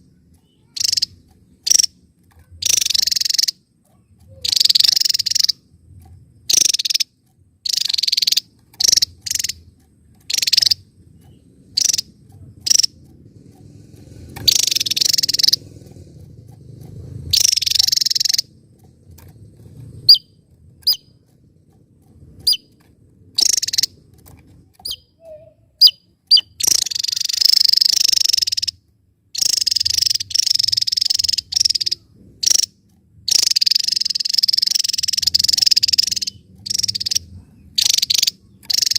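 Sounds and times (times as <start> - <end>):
sharp bird chip notes: 0.0 - 19.3, 19.9 - 21.8, 22.4 - 24.1, 24.7 - 28.8, 29.4 - 38.9
bird singing high bursts: 0.5 - 2.0, 2.6 - 3.6, 4.4 - 5.6, 6.4 - 9.6, 10.3 - 12.9, 14.3 - 15.6, 17.3 - 18.5, 22.4 - 22.7, 23.4 - 24.0, 24.8 - 28.8, 29.4 - 32.7, 33.3 - 38.9.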